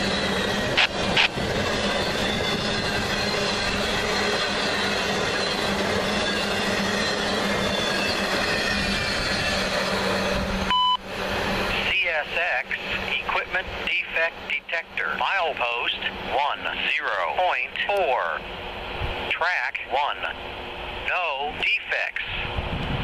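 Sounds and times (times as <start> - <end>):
steel wheels rumbling on rail: 0.0 - 21.6, 22.2 - 23.0
high wheel squeal: 1.6 - 10.4
short electronic beep: 10.7 - 11.0.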